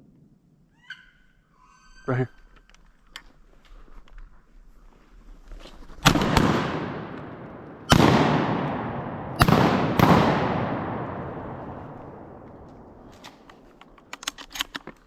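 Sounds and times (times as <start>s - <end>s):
shotgun shots with echo: 6.0s - 12.9s.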